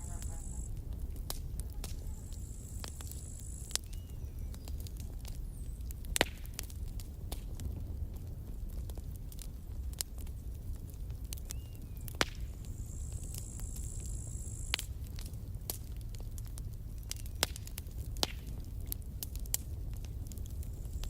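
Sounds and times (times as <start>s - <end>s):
thin high hiss: 0.0s - 0.8s
campfire crackling and popping: 0.0s - 21.0s
low steady rumble: 0.0s - 21.0s.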